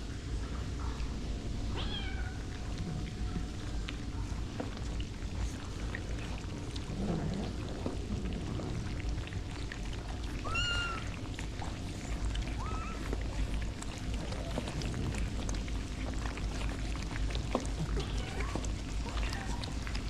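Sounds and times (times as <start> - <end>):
steady low rumble: 0.0 - 18.0
cat meowing: 1.7 - 2.5, 10.4 - 11.1, 12.6 - 13.1.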